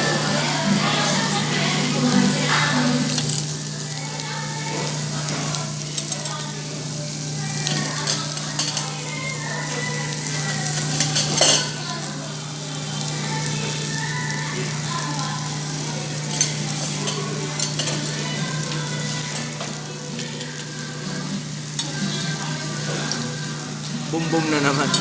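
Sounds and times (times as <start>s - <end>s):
meat sizzling on a grill: 0.0s - 25.0s
metal utensils clicking on grill: 3.1s - 3.5s, 4.7s - 6.9s, 7.5s - 12.1s, 15.6s - 25.0s.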